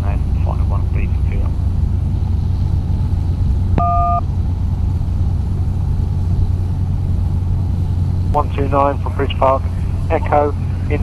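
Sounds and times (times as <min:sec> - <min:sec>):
jet aircraft rumble: 0:00.0 - 0:11.0
electronic two-tone beep: 0:03.8 - 0:04.2.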